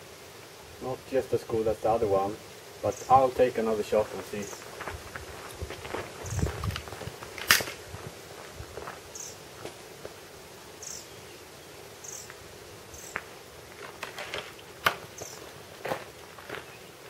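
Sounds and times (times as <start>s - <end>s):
small bird chirping: 6.2s - 6.6s, 9.1s - 9.4s, 10.8s - 11.4s, 12.0s - 13.2s, 15.2s - 15.5s.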